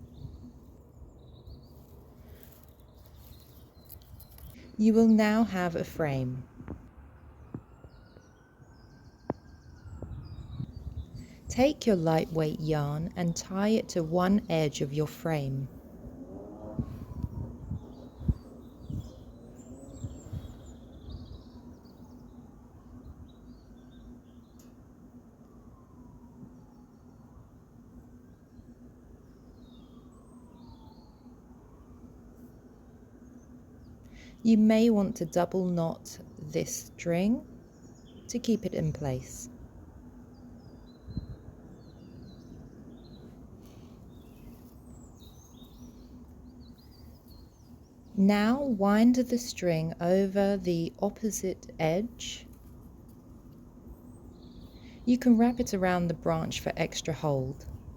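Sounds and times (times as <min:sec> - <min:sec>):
small birds chirping: 0:00.0 - 0:06.4, 0:07.4 - 0:15.8, 0:16.8 - 0:24.8, 0:32.5 - 0:39.6, 0:40.3 - 0:57.9
faint steady hum: 0:16.8 - 0:57.9.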